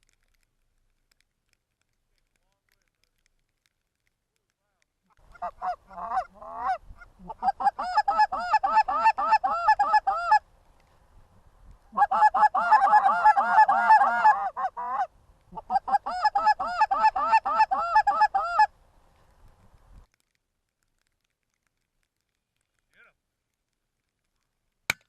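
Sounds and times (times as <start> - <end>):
goose honking: 5.3 - 10.4, 11.9 - 18.7.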